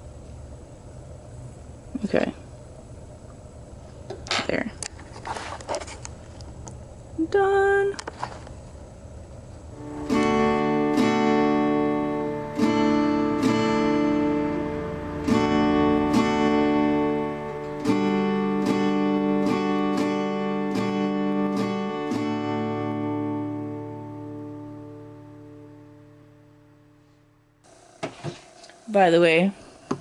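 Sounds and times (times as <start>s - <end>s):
acoustic guitar strumming chords: 9.8s - 27.5s.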